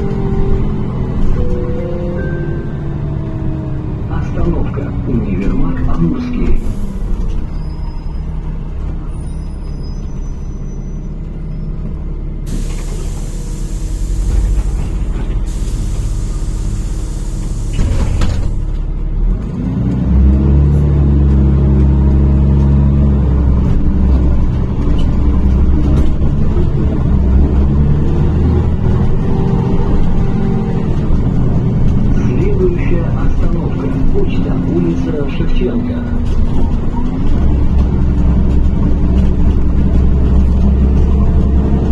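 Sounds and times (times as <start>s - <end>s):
bus engine running: 0.0s - 41.9s
compressed air hiss: 12.5s - 14.9s, 15.5s - 18.0s.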